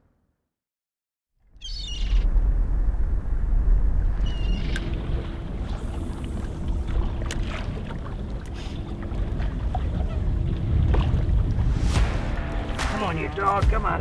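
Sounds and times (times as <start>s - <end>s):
wind buffeting microphone: 3.6s - 14.0s.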